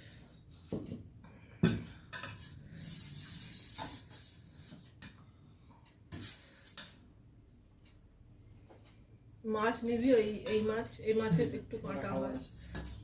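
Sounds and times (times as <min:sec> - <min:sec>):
dishes and utensils clinking: 0:01.6 - 0:02.7.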